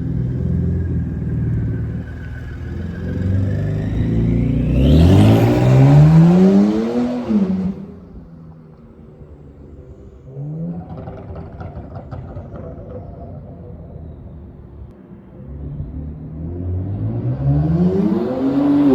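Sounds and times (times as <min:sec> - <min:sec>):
car engine accelerating hard: 0:00.0 - 0:08.2, 0:15.8 - 0:18.9.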